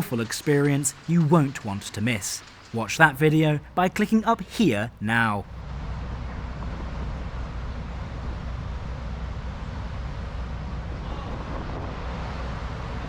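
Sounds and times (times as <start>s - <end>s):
constant low hum: 0.0s - 13.0s
moving train rumbling: 0.0s - 13.0s.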